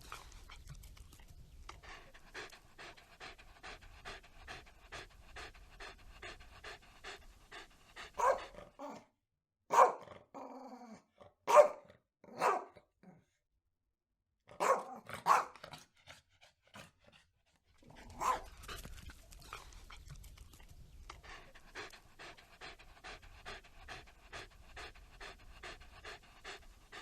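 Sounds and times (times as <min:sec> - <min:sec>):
dog panting: 0:00.0 - 0:08.8, 0:15.3 - 0:27.0
dog barking: 0:08.2 - 0:09.0, 0:09.7 - 0:10.1, 0:11.5 - 0:12.9, 0:14.5 - 0:15.6, 0:18.1 - 0:18.5.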